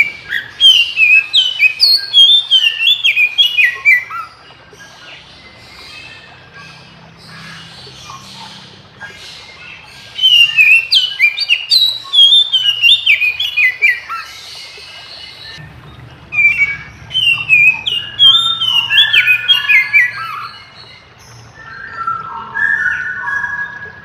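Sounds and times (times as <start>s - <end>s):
bird singing whistled phrases: 0.0s - 4.4s, 9.1s - 14.3s, 16.3s - 24.0s.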